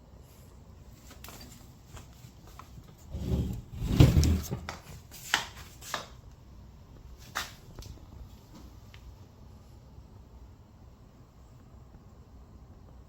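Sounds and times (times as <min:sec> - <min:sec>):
handling knocks and rustling: 0:01.0 - 0:06.2.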